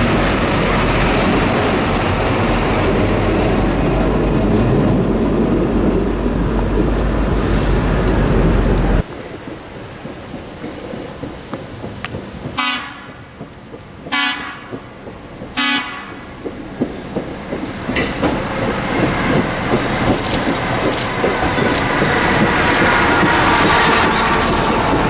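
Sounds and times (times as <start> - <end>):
train passing close by: 0.0 - 25.0
train wheels clicking over rail joints: 0.0 - 25.0
locomotive air horn blasts: 12.6 - 13.2, 14.1 - 14.8, 15.6 - 16.3.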